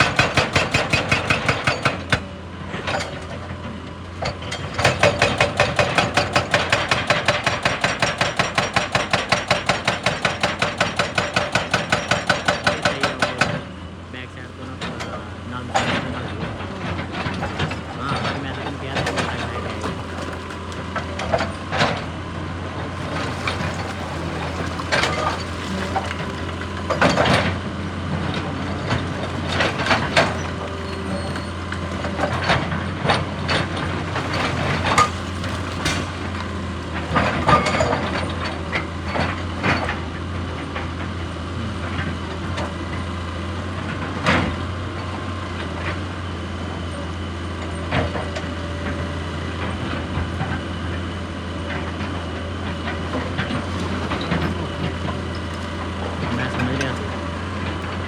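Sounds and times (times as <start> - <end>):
knocks and clanks of working gear: 0.0 - 3.4, 4.2 - 13.6, 23.0 - 27.6, 28.8 - 40.0
excavator diesel engine droning: 0.0 - 58.0.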